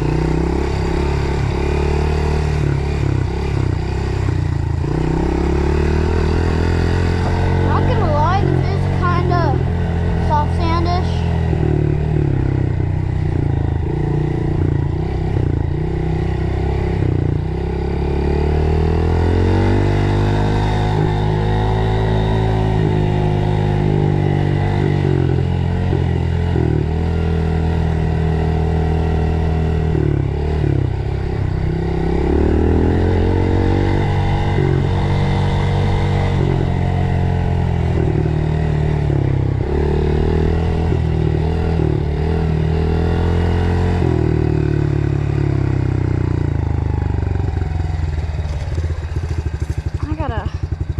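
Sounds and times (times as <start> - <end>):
dirt bike engine revving: 0.0 - 46.8.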